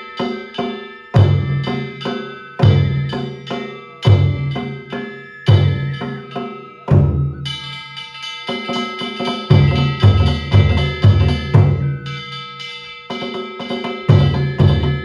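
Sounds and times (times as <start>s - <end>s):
metal hand gongs clanging: 0.0s - 15.0s
large drum strikes: 9.5s - 12.1s, 14.1s - 15.0s.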